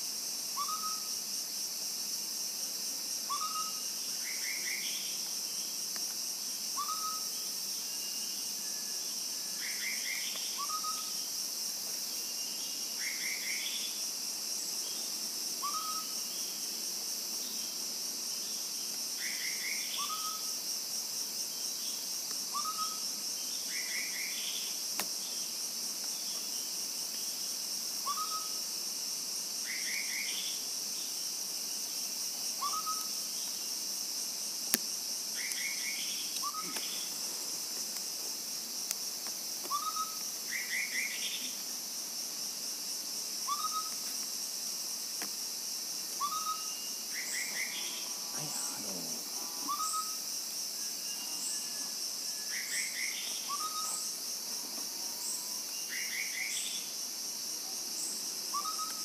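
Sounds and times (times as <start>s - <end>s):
high-pitched insect drone: 0.0s - 59.0s
bird whistle calls: 49.6s - 50.2s.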